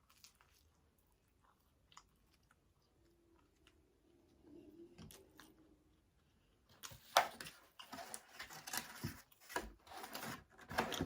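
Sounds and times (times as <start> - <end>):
chewing with mouth smacking: 0.0 - 4.0.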